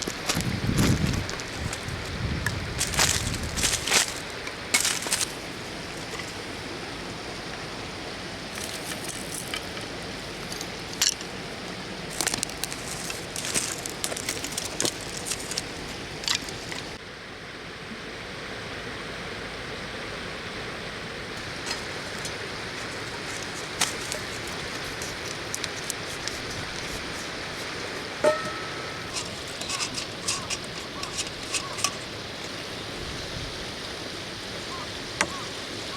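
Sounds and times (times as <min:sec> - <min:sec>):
clicks and rustles: 0:00.0 - 0:05.4, 0:12.1 - 0:17.0, 0:21.4 - 0:32.6
river water flowing: 0:02.8 - 0:35.9.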